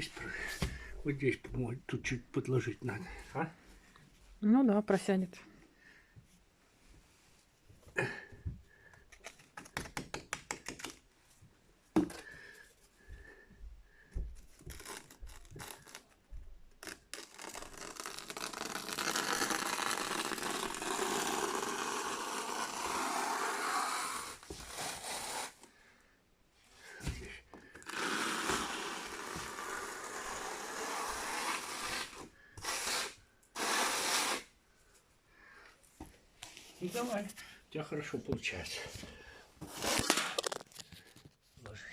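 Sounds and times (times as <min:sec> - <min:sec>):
scraping and rubbing: 0:39.6 - 0:41.2.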